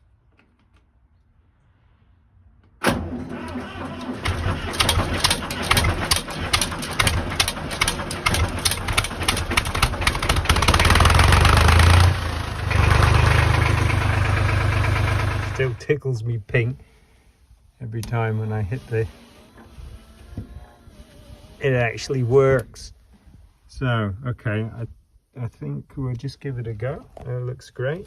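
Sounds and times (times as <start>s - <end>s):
diesel tractor engine starting: 2.8s - 23.4s.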